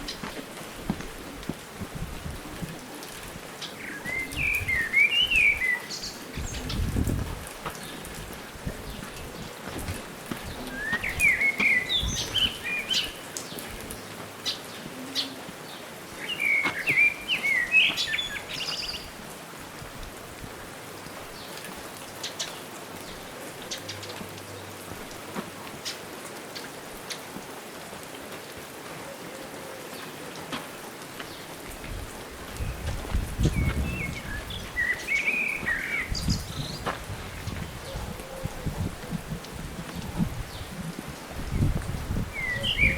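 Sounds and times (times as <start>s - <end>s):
background hiss: 0.0s - 42.9s
songbird chirping: 3.6s - 7.1s, 10.4s - 19.2s, 32.4s - 38.6s, 41.6s - 42.9s.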